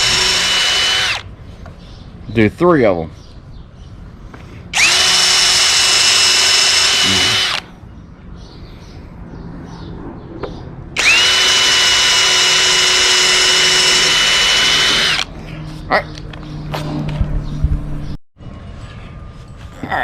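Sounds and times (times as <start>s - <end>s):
power drill whining: 0.0s - 1.3s, 4.8s - 7.6s, 11.0s - 15.3s.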